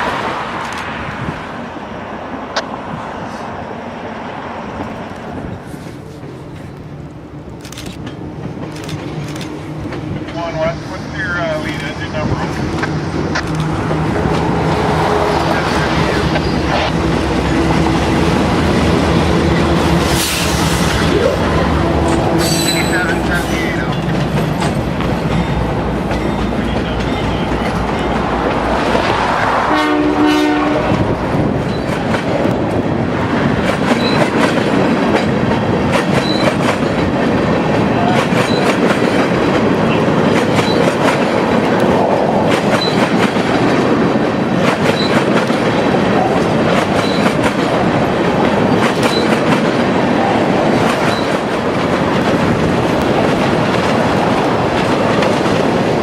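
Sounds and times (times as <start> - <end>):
freight train rumbling past: 0.0 - 56.0
train horn: 29.5 - 31.1.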